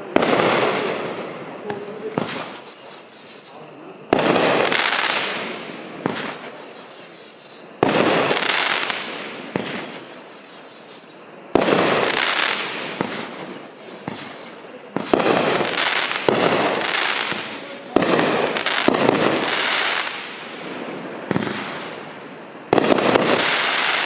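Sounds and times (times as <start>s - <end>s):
falling firework whistle: 0.0s - 20.4s, 22.7s - 24.0s
firework shots banging: 14.0s - 20.4s, 21.2s - 22.1s, 22.7s - 24.0s.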